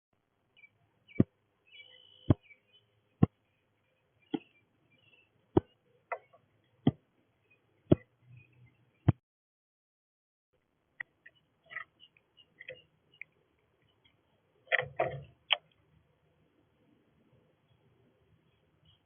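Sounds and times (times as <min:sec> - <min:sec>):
faint high bird chirps: 0:00.5 - 0:06.8, 0:07.4 - 0:09.2, 0:11.0 - 0:14.5, 0:17.6 - 0:19.0.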